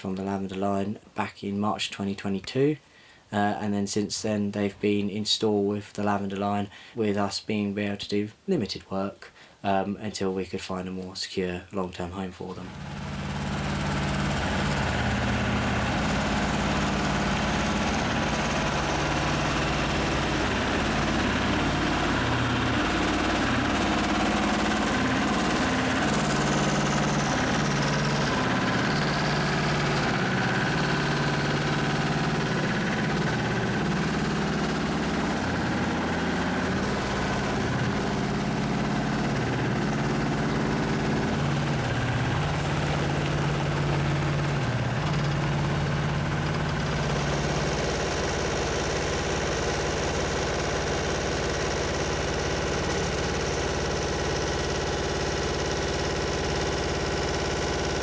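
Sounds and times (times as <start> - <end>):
heavy diesel engine running: 12.6 - 58.0.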